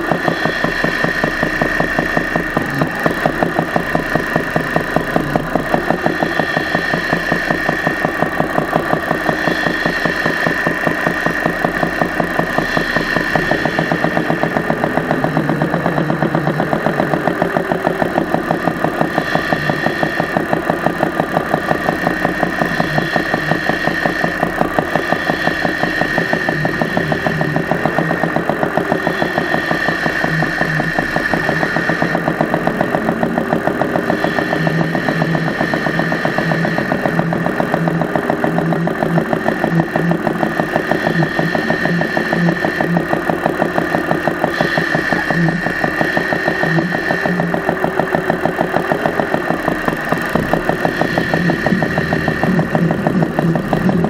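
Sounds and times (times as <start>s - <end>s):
engine idling with valve clatter: 0.0s - 54.0s.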